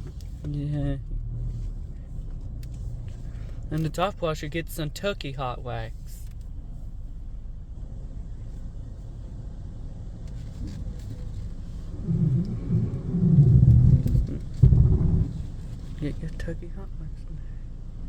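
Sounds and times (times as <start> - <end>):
car idling: 0.0 - 18.0
uneven low rumbling: 10.5 - 18.0.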